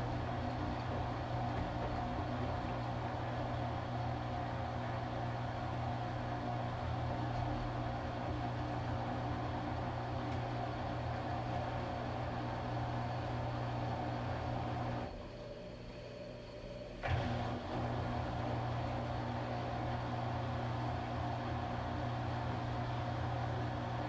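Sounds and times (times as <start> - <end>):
washing machine motor hum: 0.0 - 4.2, 5.6 - 20.2.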